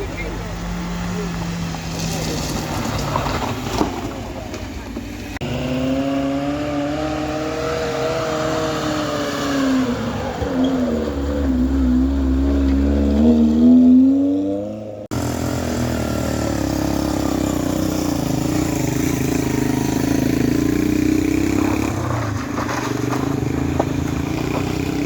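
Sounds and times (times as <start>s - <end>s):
vehicle engine running: 0.0s - 6.5s, 15.1s - 25.0s.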